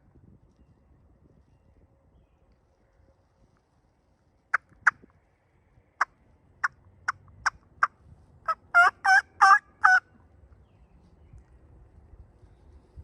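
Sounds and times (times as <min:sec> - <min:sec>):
turkey clucks and yelps: 0:08.5 - 0:10.1.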